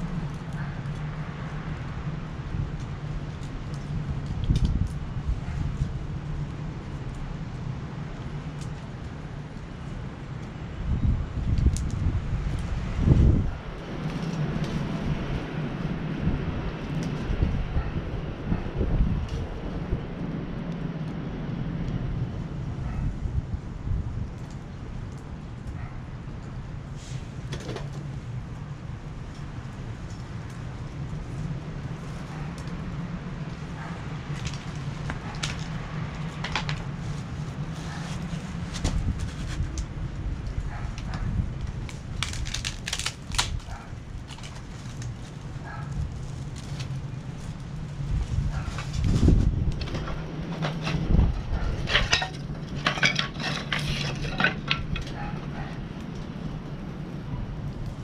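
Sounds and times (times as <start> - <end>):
wood fire crackling: 0.0 - 58.0
metal parts clinking and clattering: 49.8 - 55.4.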